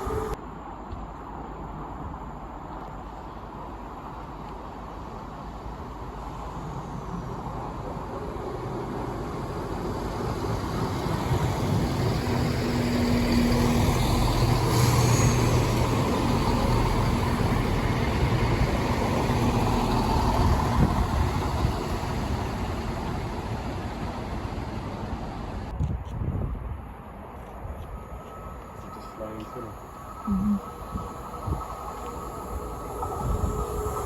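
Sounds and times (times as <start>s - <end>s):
train passing: 0.0s - 25.8s, 26.4s - 34.0s.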